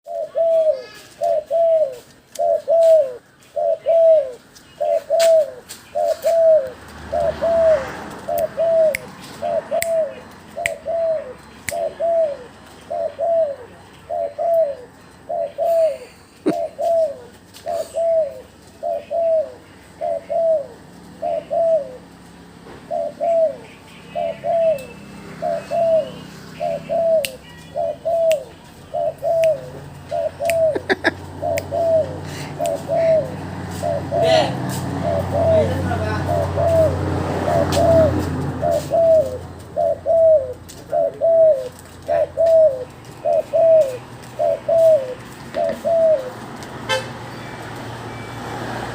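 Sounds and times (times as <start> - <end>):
dove cooing: 0.0 - 47.0.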